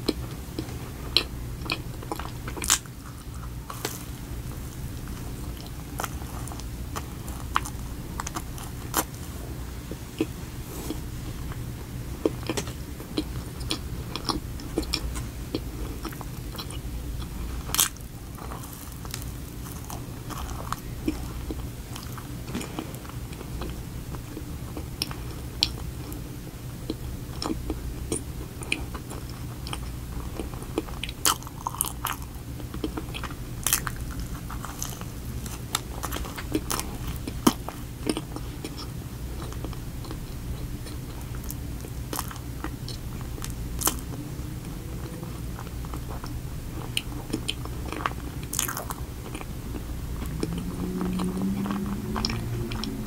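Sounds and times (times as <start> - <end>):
crunchy cookie crunches: 0.0 - 9.3, 12.2 - 26.2, 26.8 - 44.2, 45.3 - 53.0
chewing cookie donut: 0.0 - 53.0
steady low hum: 0.0 - 53.0.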